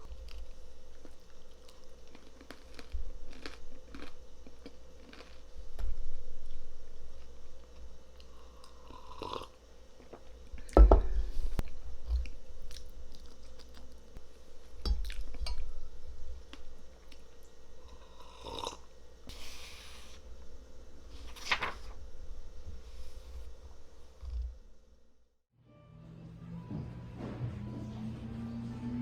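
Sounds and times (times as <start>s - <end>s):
chewing and crunching: 0.0s - 10.7s, 11.6s - 14.3s.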